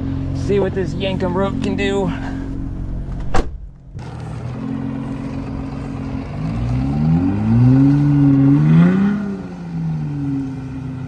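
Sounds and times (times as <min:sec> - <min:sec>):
truck engine revving: 0:03.9 - 0:11.0.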